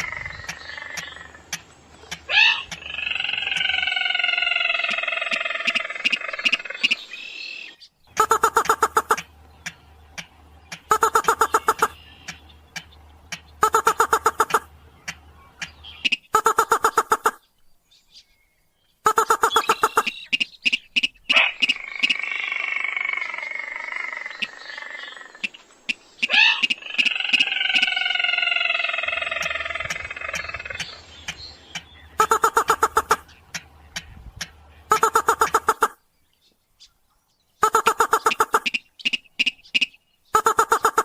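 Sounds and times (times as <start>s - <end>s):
bird rapid ticking calls: 0.0s - 41.0s
bird falling squealing calls: 2.3s - 7.0s.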